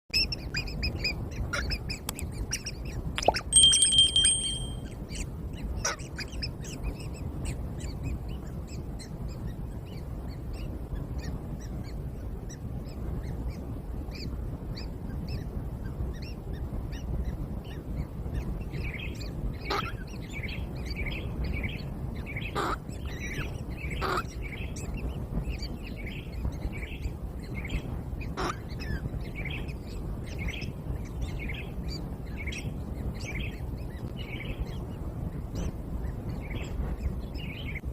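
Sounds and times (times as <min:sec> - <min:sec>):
birds chirping: 0:03.2 - 0:04.8
whistle-like tone: 0:03.2 - 0:04.8.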